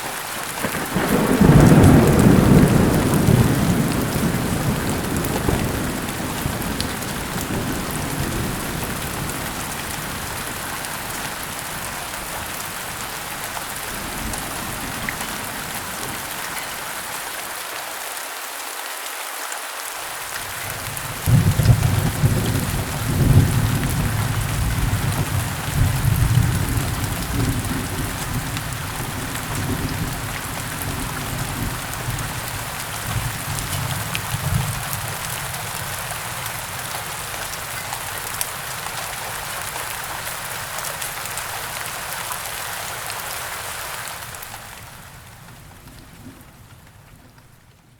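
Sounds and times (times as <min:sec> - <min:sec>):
heavy rain falling: 0:00.0 - 0:47.9
rolling thunder: 0:00.4 - 0:16.8, 0:20.4 - 0:40.0.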